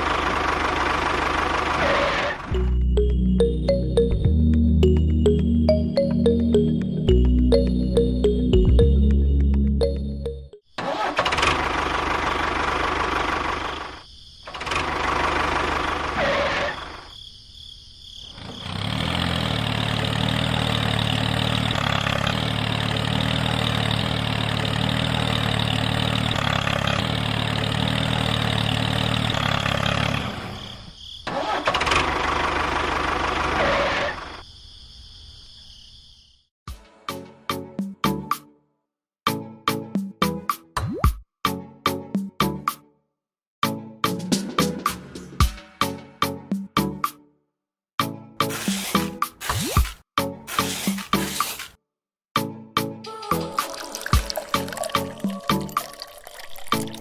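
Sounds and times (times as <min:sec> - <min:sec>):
engine running: 0:00.0 - 0:16.5, 0:18.4 - 0:30.6, 0:31.3 - 0:34.2.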